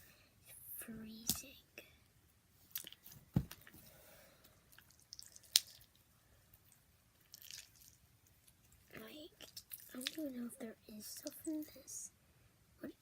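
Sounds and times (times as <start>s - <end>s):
slime squishing in hands: 4.7s - 8.8s, 9.4s - 10.3s.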